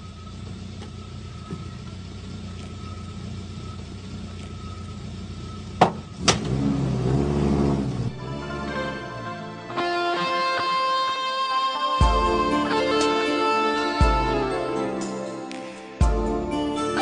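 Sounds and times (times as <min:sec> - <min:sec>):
vehicle engine humming and revving: 0:00.0 - 0:11.2, 0:11.9 - 0:17.0
guitar music: 0:08.1 - 0:17.0.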